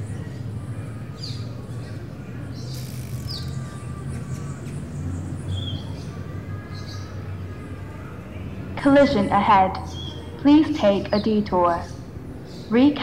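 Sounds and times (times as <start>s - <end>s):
bird chirps: 2.5s - 6.1s.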